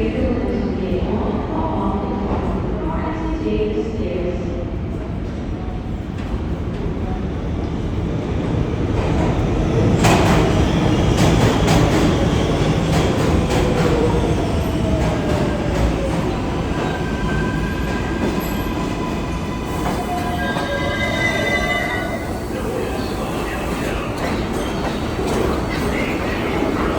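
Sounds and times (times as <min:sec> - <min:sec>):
subway train running on rails: 0:00.0 - 0:26.9
high wheel squeal: 0:16.9 - 0:22.5.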